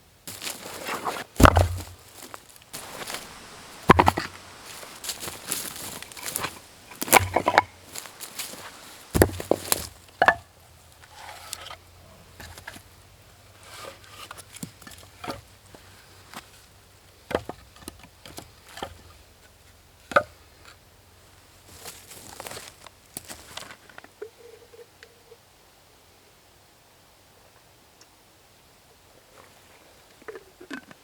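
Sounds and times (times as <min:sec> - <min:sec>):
light rustling: 0:00.3 - 0:12.9.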